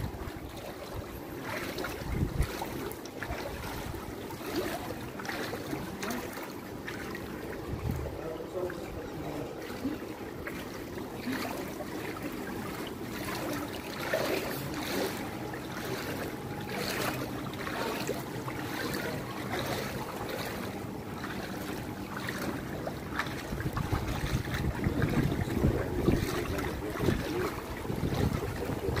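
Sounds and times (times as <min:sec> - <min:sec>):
wind buffeting microphone: 0:00.0 - 0:04.4, 0:07.5 - 0:09.5, 0:23.3 - 0:29.0
water sloshing and splashing: 0:00.0 - 0:29.0.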